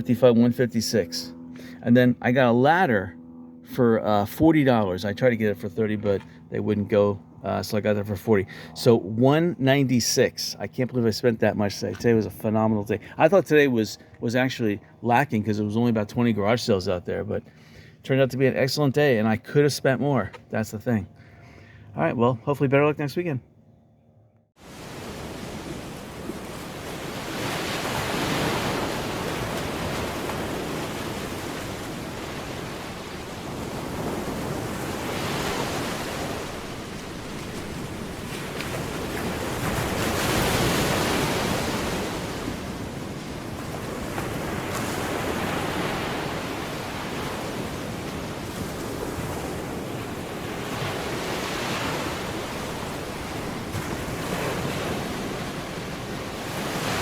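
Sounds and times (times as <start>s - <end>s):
waves rushing: 24.6s - 57.0s.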